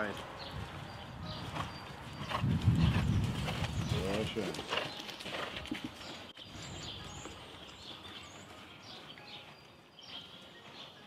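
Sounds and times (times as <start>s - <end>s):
small birds chirping: 0.0s - 11.0s
faint outdoor noise: 4.2s - 11.0s.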